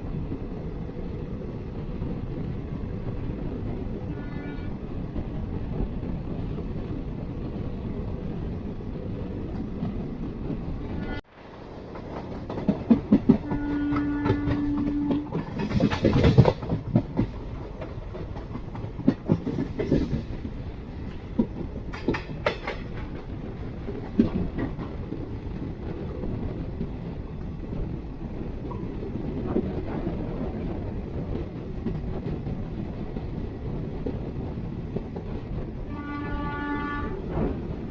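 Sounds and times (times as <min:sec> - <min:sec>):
train wheels clattering: 0:09.8 - 0:27.1.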